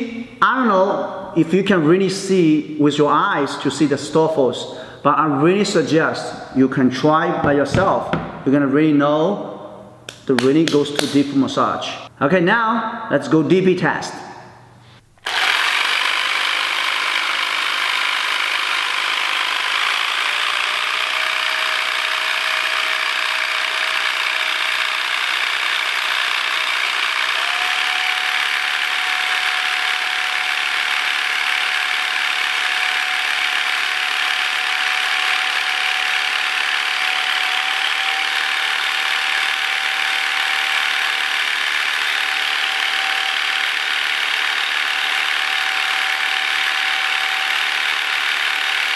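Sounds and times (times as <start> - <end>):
massage gun motor buzz: 15.2 - 48.9.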